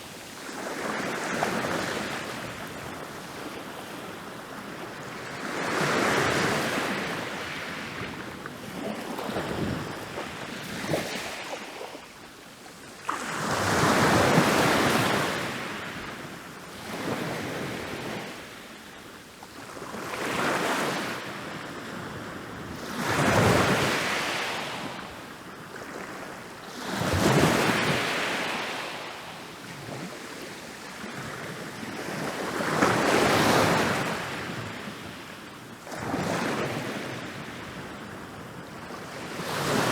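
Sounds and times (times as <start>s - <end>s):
ocean waves breaking on beach: 35.9s - 39.9s.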